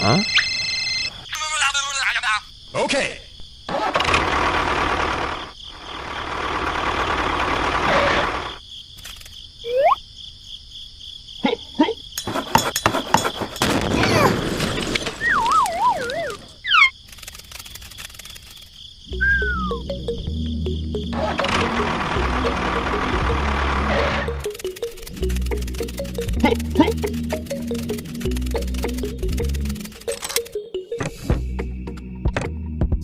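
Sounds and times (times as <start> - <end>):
music: 19.1 - 33.0
sliding whistle tones: 19.2 - 19.8.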